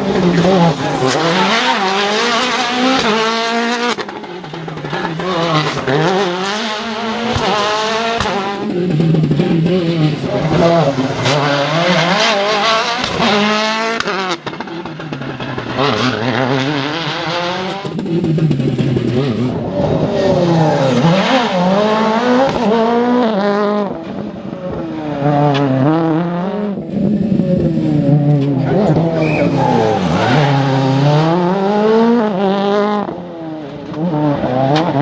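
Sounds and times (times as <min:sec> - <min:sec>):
rally car engine revving: 0:00.0 - 0:35.0
car passing: 0:10.1 - 0:17.9, 0:27.9 - 0:33.8.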